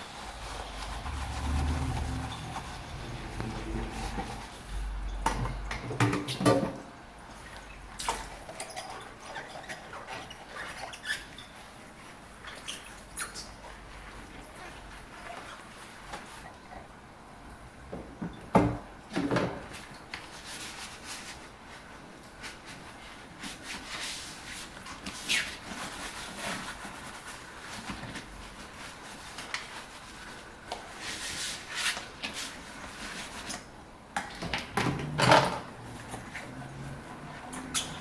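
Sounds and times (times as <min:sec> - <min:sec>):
dishes clattering in sink: 0:05.1 - 0:06.9, 0:34.2 - 0:35.8.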